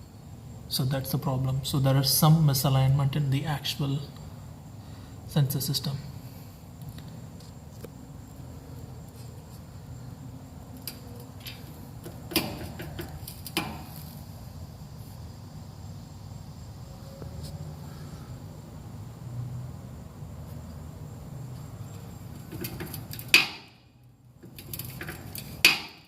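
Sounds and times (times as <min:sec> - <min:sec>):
sharp knocks: 0:12.0 - 0:13.9, 0:22.5 - 0:23.8, 0:25.0 - 0:26.0.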